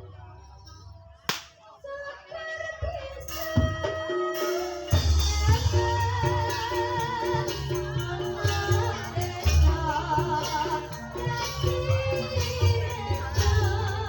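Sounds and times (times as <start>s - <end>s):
pitched percussion notes: 3.3s - 14.0s
gamelan ensemble: 4.4s - 14.0s.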